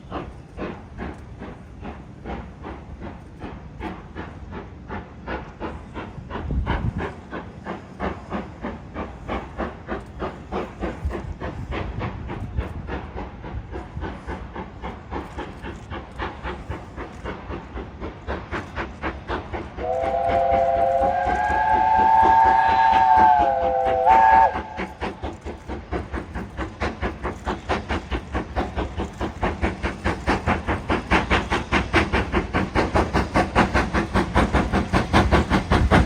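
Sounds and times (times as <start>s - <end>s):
steam locomotive chuffing: 0.0s - 36.0s
steam locomotive whistle: 19.9s - 25.0s.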